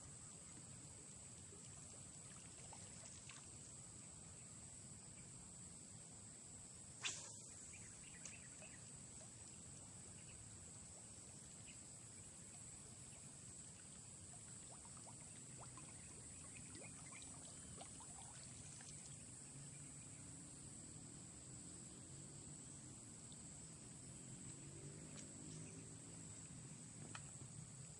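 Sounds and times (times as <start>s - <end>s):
faint high insect drone: 0.0s - 27.9s
sharp click: 7.0s - 7.5s.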